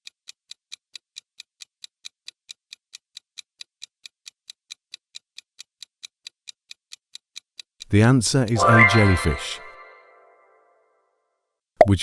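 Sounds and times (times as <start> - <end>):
fast clock ticking: 0.0 - 9.1.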